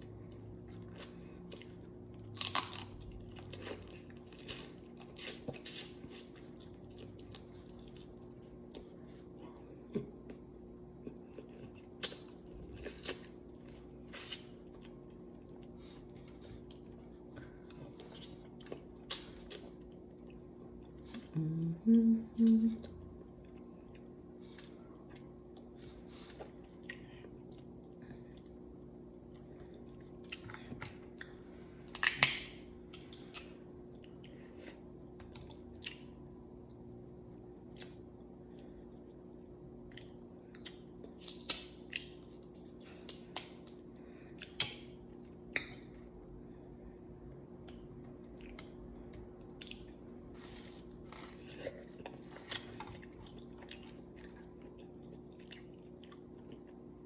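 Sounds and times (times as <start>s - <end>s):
chewing and mouth smacks: 38.9s - 46.1s, 47.6s - 56.9s.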